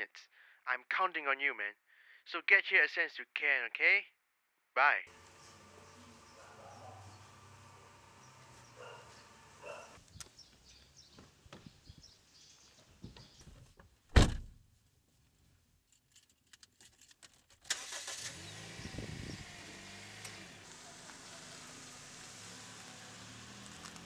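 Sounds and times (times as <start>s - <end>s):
car engine starting and running: 5.1s - 10.0s, 17.6s - 24.0s
loud thump: 14.1s - 14.6s.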